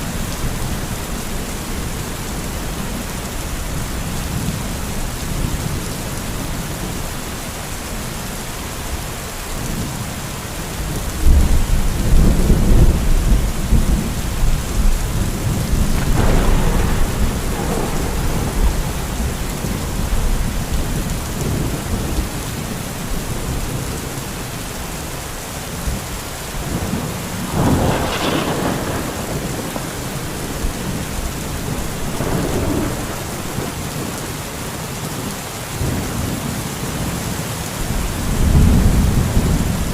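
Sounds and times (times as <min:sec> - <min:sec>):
steady rain: 0:00.0 - 0:39.9
thunder rumbling: 0:11.2 - 0:24.6, 0:26.6 - 0:34.6, 0:37.8 - 0:39.9.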